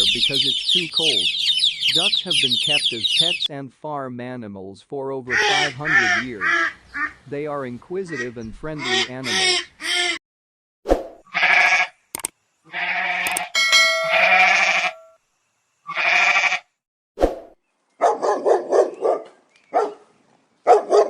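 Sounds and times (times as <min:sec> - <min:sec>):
loud bleats: 0:05.3 - 0:07.1, 0:11.3 - 0:11.9, 0:12.7 - 0:13.5, 0:14.1 - 0:15.0, 0:15.9 - 0:16.7
rapid dog-like yaps and barks: 0:18.0 - 0:20.0, 0:20.7 - 0:21.0.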